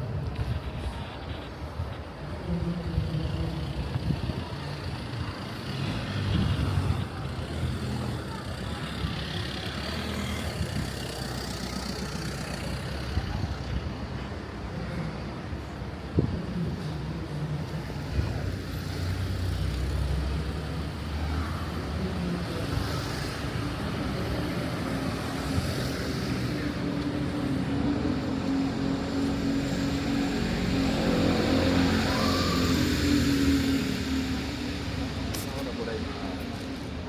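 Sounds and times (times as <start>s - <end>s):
car engines in traffic: 0.0s - 37.0s
car passing close: 19.0s - 37.0s.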